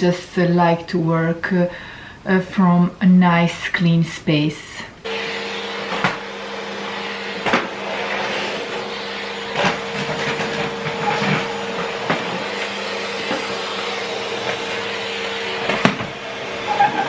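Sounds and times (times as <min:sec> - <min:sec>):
vacuum cleaner running: 0:05.0 - 0:17.0.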